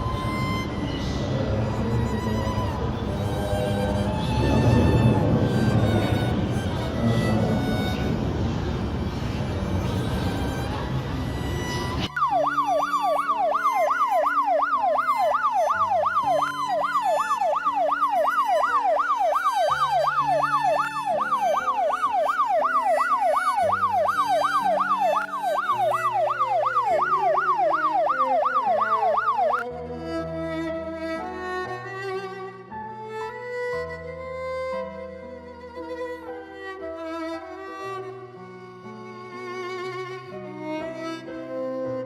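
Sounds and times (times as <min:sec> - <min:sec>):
music playing: 0:00.0 - 0:08.2, 0:09.7 - 0:30.2
electronic yelp siren: 0:12.0 - 0:29.6.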